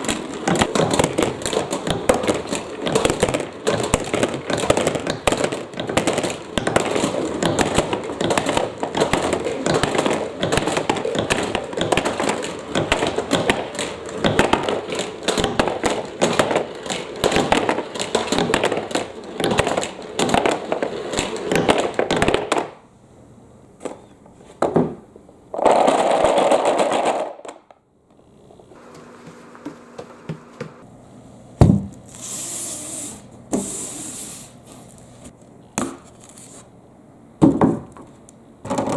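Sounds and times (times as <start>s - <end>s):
marble rolling rush: 25.6s - 27.4s.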